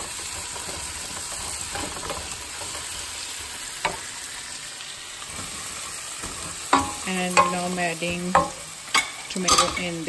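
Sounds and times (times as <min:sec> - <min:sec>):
food sizzling in hot oil: 0:00.0 - 0:10.0
wooden spatula scraping wok: 0:00.2 - 0:04.1.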